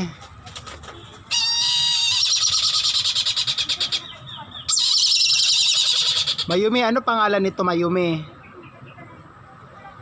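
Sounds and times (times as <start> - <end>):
bird of prey chattering call: 1.3 - 6.8.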